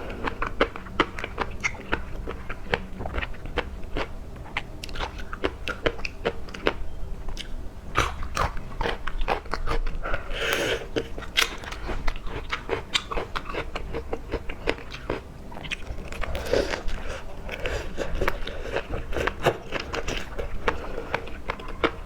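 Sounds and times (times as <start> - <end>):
person chewing crunchy food: 0.0 - 22.0.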